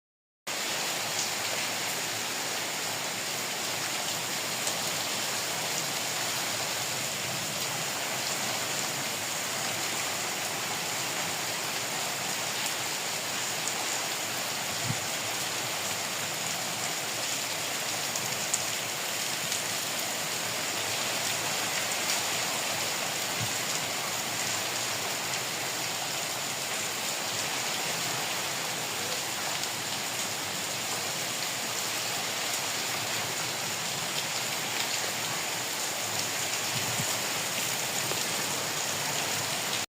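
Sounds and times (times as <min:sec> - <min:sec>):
heavy rain hissing: 0:00.5 - 0:39.9.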